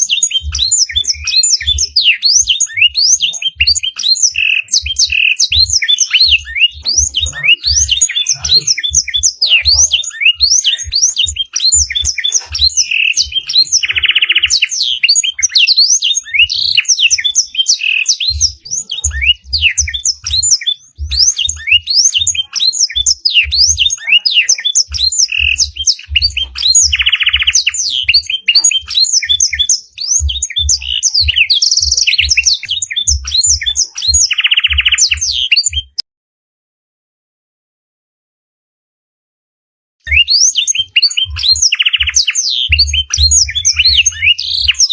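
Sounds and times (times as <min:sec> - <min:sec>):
canary singing: 0:00.0 - 0:36.0, 0:40.0 - 0:44.9
dull low thumps: 0:00.4 - 0:14.2, 0:18.2 - 0:24.0, 0:29.5 - 0:34.8, 0:41.2 - 0:44.9.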